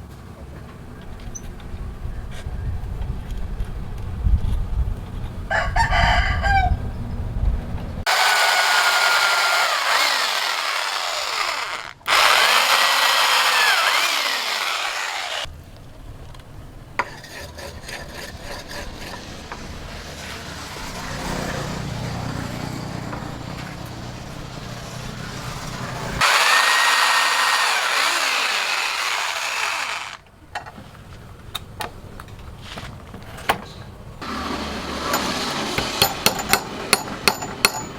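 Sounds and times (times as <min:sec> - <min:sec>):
rooster crowing: 0:05.5 - 0:06.9
power grinder on steel: 0:08.1 - 0:15.5, 0:24.2 - 0:30.2, 0:34.2 - 0:36.1.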